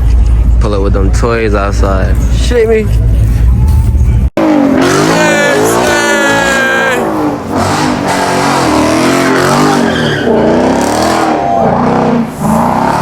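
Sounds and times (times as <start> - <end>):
car engine revving: 4.4 - 13.0.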